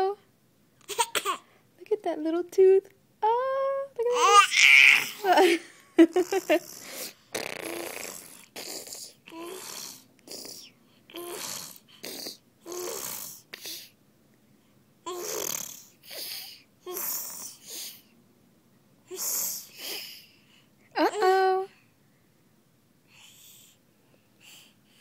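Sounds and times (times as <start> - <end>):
baby making raspy breathy noises: 6.6 - 14.0, 15.0 - 18.1, 19.1 - 20.5.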